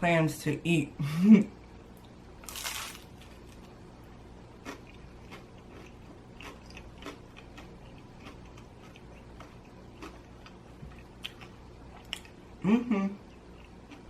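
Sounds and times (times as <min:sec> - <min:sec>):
person chewing crispy crust: 0:02.4 - 0:03.8, 0:04.5 - 0:12.5, 0:13.2 - 0:14.0.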